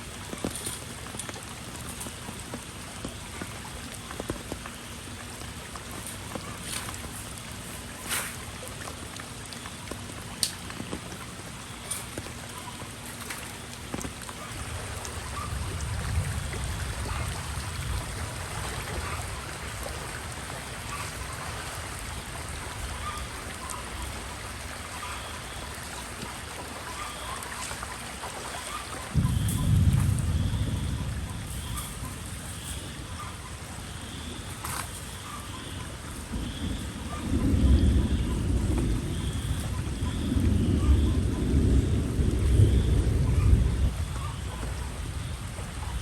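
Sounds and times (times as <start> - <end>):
rain falling: 0.0 - 46.0
sharp drips: 0.0 - 46.0.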